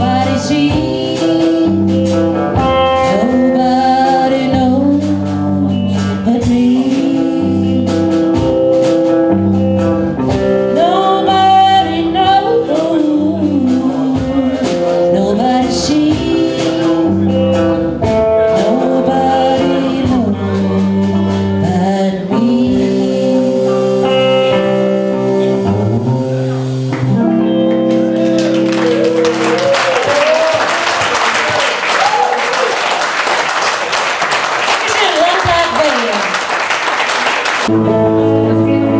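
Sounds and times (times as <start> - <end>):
live band with singing: 0.0 - 38.9
audience applause: 28.0 - 37.7.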